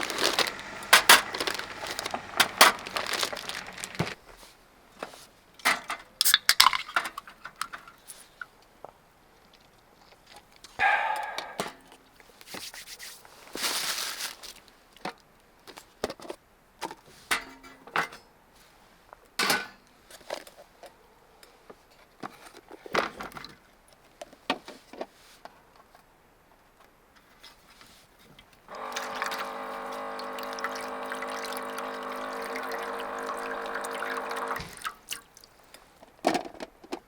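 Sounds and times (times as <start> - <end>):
small objects handled and set down: 0.0 - 4.3.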